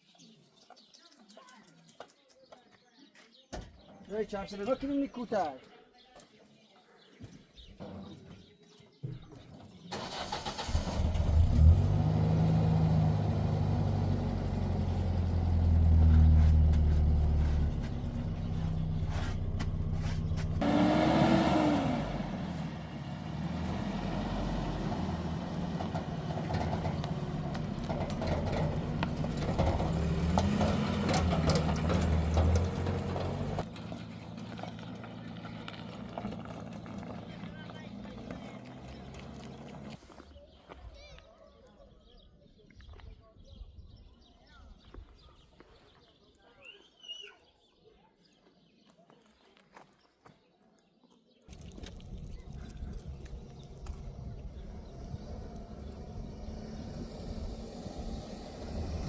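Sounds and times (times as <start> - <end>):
engine running unevenly: 10.1 - 40.0, 51.5 - 59.0.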